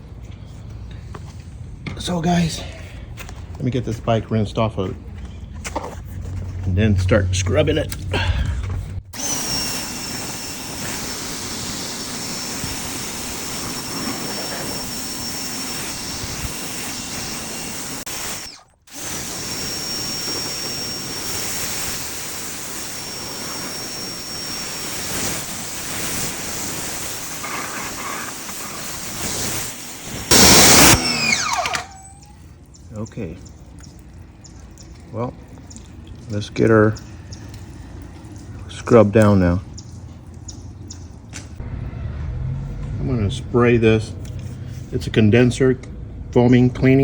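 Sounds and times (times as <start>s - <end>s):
high motor whine: 7.0s - 32.4s
pressure washer spraying water: 9.2s - 32.4s.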